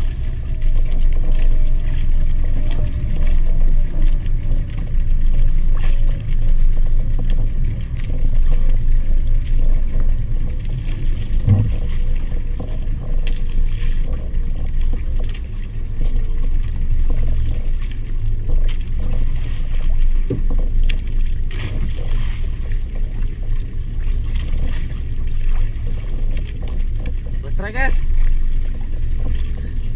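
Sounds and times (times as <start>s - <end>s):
boat low rumble: 0.0s - 29.9s
dull knock: 11.4s - 11.9s.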